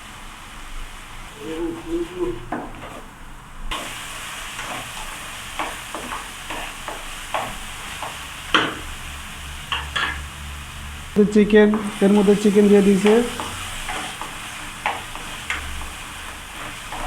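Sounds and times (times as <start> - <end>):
vegetables sizzling in oil: 0.0 - 17.0
utensil scraping and tapping pan: 4.6 - 8.9, 9.7 - 10.2.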